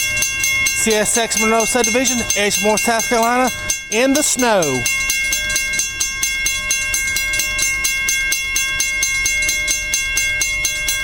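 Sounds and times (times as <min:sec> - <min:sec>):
freight train passing: 0:00.0 - 0:07.8
high ringing tones: 0:00.0 - 0:11.0.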